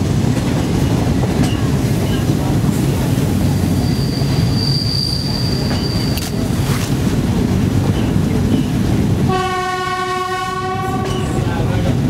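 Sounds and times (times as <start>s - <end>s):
train wheels rumbling on rail: 0.0s - 12.0s
high wheel squeal: 3.6s - 6.3s.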